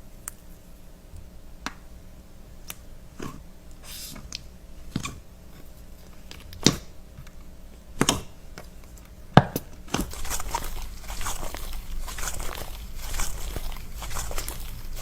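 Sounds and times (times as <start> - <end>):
crumbly scraping and crackling: 9.8 - 15.0.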